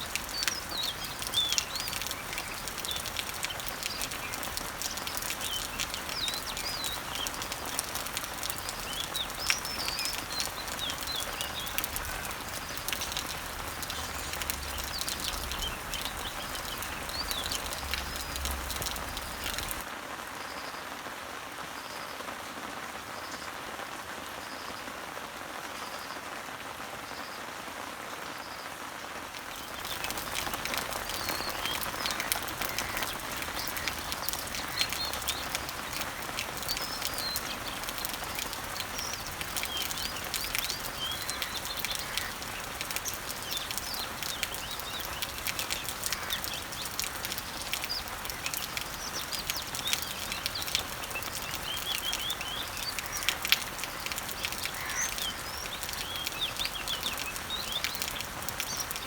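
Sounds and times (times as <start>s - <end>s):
birds chirping: 0.0s - 19.9s, 29.4s - 59.0s
rain falling on leaves: 0.0s - 59.0s.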